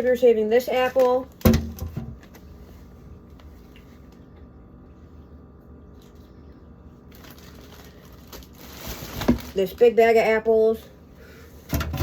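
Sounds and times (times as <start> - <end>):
low hum: 2.1 - 8.8.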